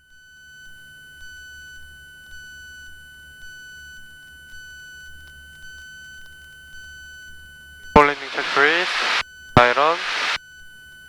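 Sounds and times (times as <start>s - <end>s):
high-pitched electronic whine: 8.0s - 10.4s.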